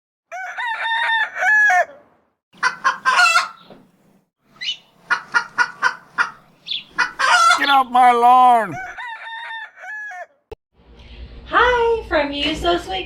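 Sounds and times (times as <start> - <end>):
rooster crowing: 0.3 - 1.9, 8.7 - 10.4.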